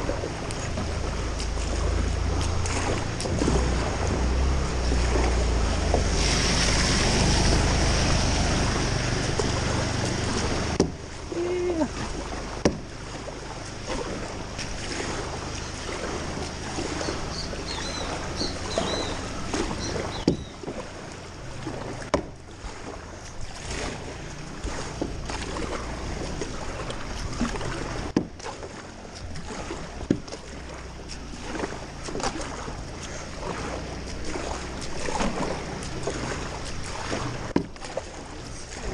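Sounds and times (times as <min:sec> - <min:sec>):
deep rumble: 0:00.0 - 0:28.2
floodwater sloshing and splashing: 0:00.0 - 0:38.9
rushing water: 0:00.0 - 0:38.9.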